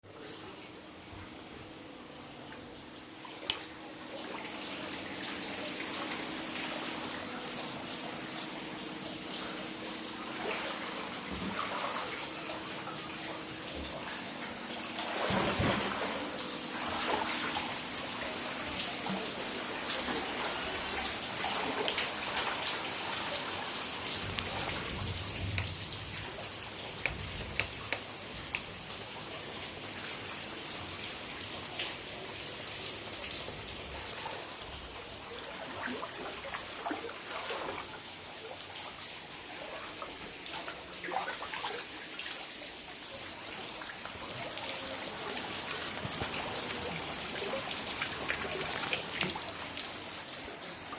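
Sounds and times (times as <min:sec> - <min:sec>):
heavy rain falling: 0:18.6 - 0:29.8.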